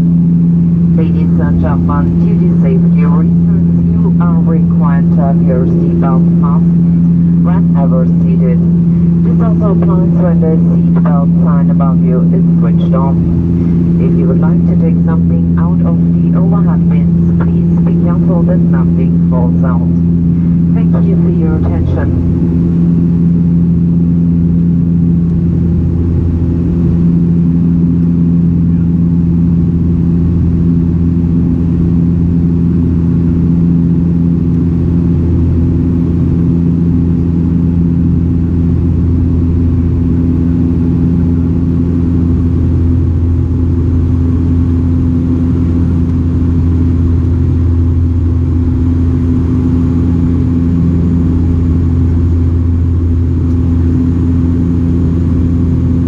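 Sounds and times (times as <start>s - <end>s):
turboprop cabin drone: 0.0s - 56.0s.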